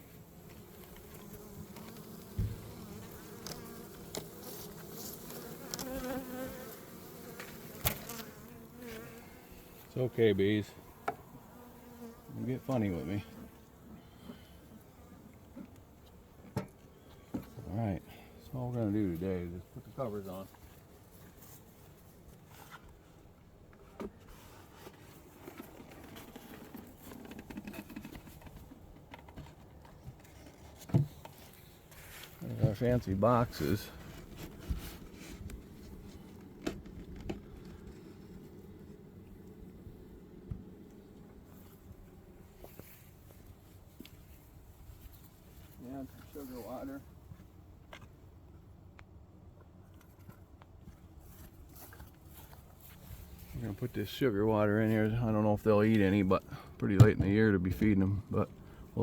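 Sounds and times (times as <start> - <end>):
honeybees buzzing: 0.0 - 15.9
taps scrapes and rustles: 0.5 - 6.2, 23.7 - 32.8, 33.5 - 38.4.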